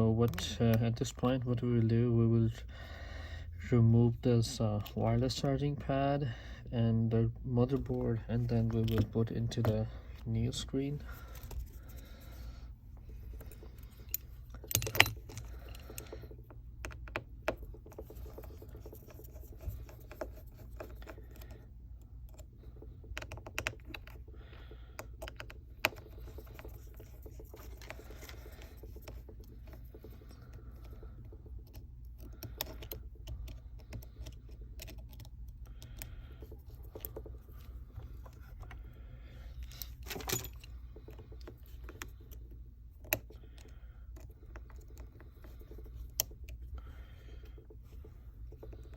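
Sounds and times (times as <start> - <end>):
steady low hum: 0.0 - 48.9
small tools clicking and tapping: 13.3 - 21.6, 22.2 - 38.8, 39.6 - 42.4.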